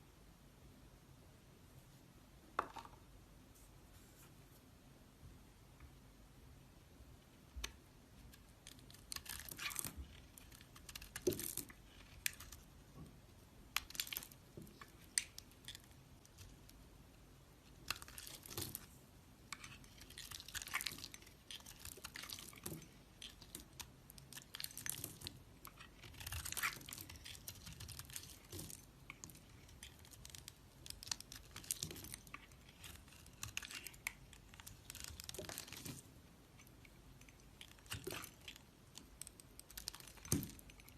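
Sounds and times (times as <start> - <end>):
knife scraping soap: 8.6 - 12.6, 19.5 - 36.0.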